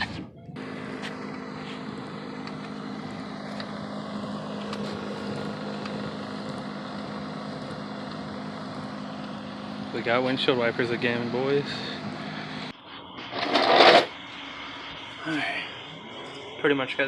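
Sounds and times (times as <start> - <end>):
windshield wiper motor hum: 0.0 - 12.7.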